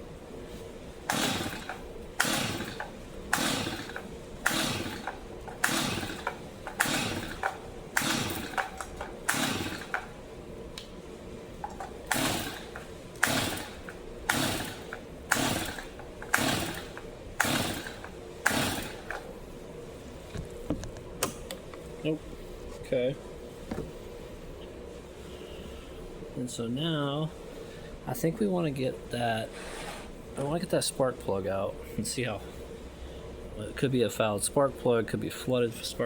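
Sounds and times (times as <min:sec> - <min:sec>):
chainsaw recoil starter pulls: 0:01.1 - 0:10.1, 0:11.8 - 0:19.2
engine turning over: 0:01.1 - 0:10.1, 0:12.1 - 0:19.2.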